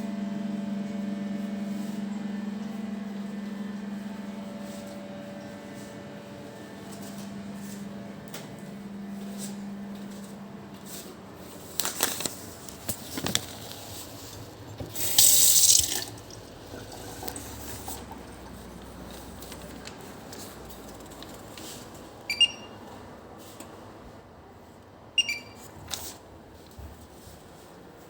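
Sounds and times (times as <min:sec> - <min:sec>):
water tap running: 0:14.9 - 0:18.8.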